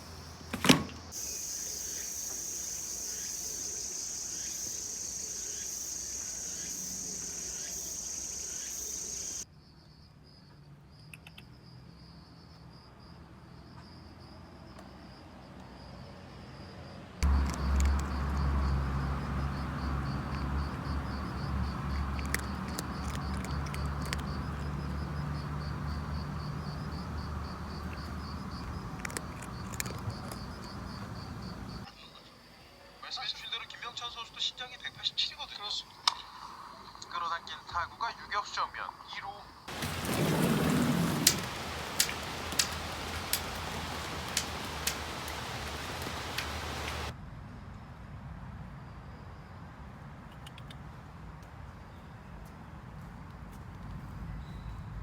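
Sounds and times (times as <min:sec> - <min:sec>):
steady rain hiss: 0:00.0 - 0:09.4, 0:17.2 - 0:47.1
cricket chirping: 0:00.0 - 0:47.2
faint clicks: 0:21.9 - 0:25.0, 0:27.8 - 0:31.8, 0:39.7 - 0:47.1.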